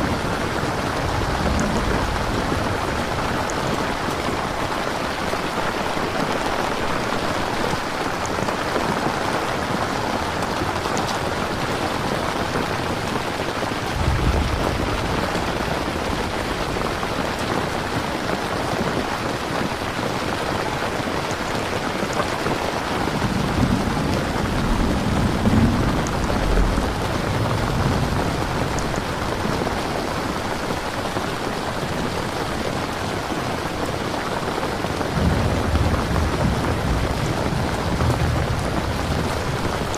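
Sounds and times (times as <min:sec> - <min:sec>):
thunder rumbles: 0:00.0 - 0:05.5, 0:09.7 - 0:18.7, 0:22.0 - 0:30.9, 0:34.9 - 0:39.9
heavy rain falling: 0:00.0 - 0:39.9.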